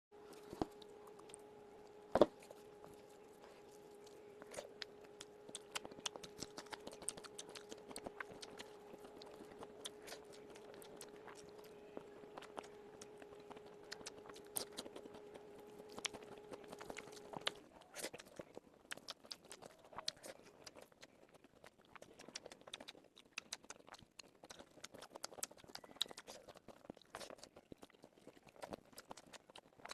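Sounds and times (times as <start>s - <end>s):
steady hum: 0.1s - 17.9s
chewing and crunching: 0.2s - 29.9s.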